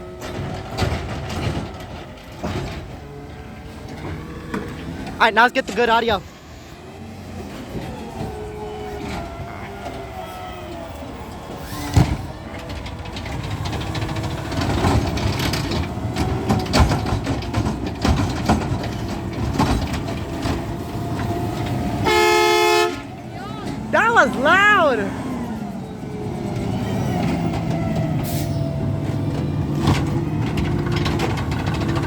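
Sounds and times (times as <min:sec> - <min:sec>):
garbage truck hydraulic whine: 0:06.3 - 0:22.1
loud steady tone: 0:24.0 - 0:25.1.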